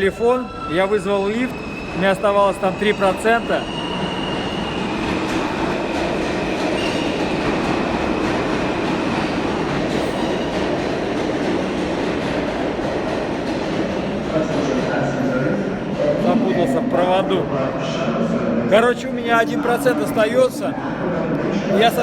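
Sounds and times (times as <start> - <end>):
subway train rumbling: 0.0 - 22.0
high wheel squeal: 0.3 - 5.0.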